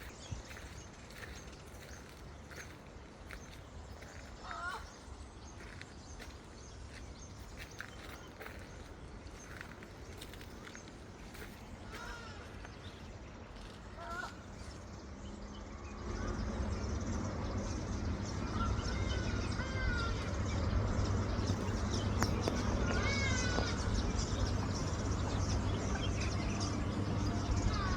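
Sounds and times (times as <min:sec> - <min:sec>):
birds chirping and whistling: 0:00.0 - 0:06.3, 0:06.9 - 0:27.9
low rumble: 0:14.8 - 0:27.9.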